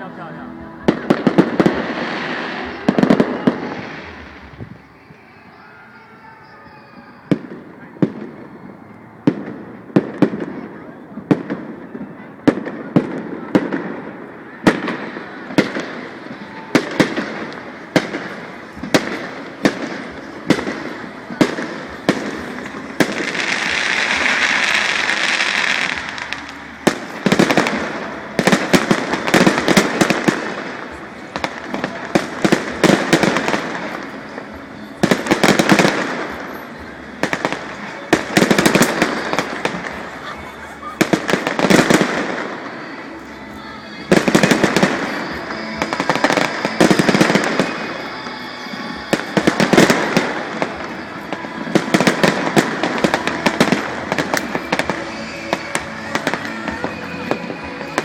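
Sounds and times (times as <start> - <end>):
hissing crackle of fireworks: 0.0 - 58.0.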